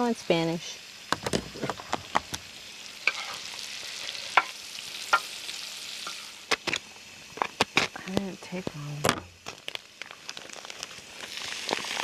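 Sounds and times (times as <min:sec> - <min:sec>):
potatoes sizzling in frying pan: 0:00.0 - 0:12.0
spatula scraping pan: 0:03.0 - 0:04.6.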